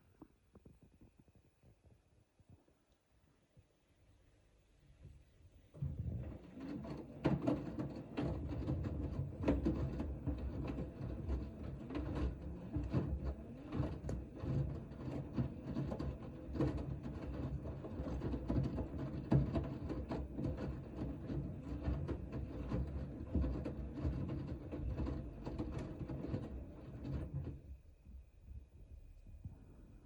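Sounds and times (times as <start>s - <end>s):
washing machine motor running: 5.8s - 27.6s
washing machine drum tumbling laundry: 5.8s - 27.8s.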